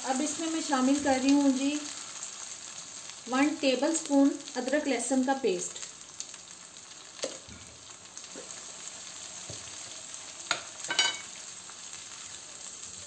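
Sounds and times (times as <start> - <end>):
onion frying in oil: 0.0 - 13.0
spatula knocking and scraping pan: 10.5 - 11.3.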